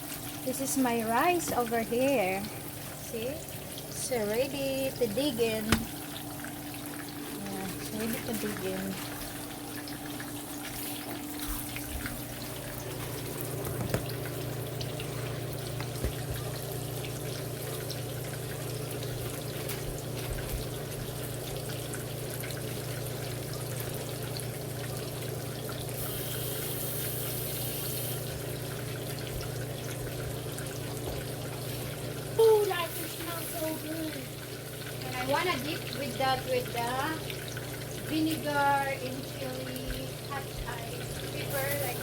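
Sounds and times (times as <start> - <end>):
fish sizzling in oil: 0.0 - 42.0.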